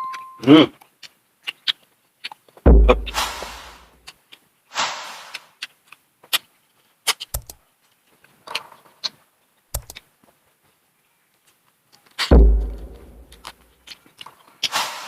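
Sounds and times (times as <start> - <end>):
low thumps: 2.7 - 3.8, 12.3 - 13.6.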